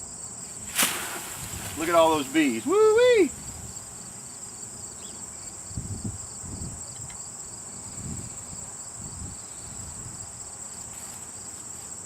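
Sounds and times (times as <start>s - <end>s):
honeybees buzzing: 0.2s - 5.8s
insect chirring: 0.2s - 10.8s.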